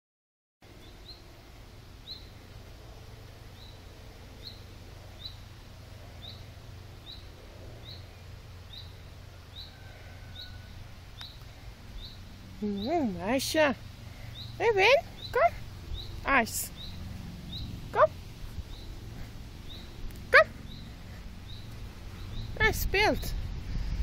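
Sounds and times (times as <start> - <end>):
low steady rumble: 0.6 - 24.0
small bird chirping: 2.0 - 2.5, 3.5 - 5.5, 6.1 - 23.6.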